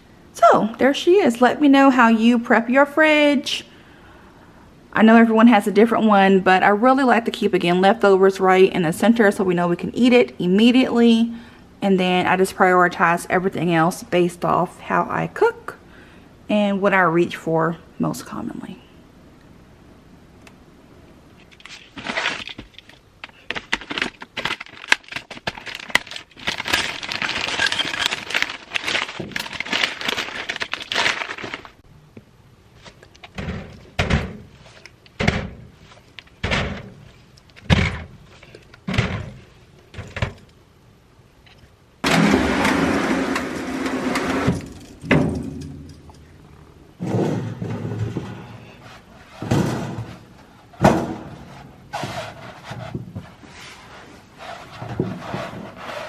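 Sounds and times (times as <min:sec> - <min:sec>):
crinkling and rustling: 0:21.3 - 0:40.6, 0:42.6 - 0:56.0
items knocking when set down: 0:47.0 - 0:48.7, 0:49.4 - 0:51.6.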